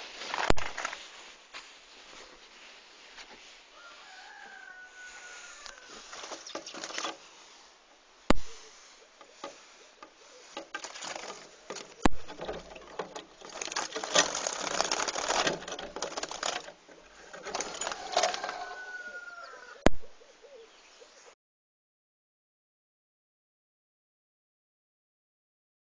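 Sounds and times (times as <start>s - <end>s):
faint falling bird chirp: 3.8s - 7.2s
bird fluttering at window: 10.5s - 18.8s.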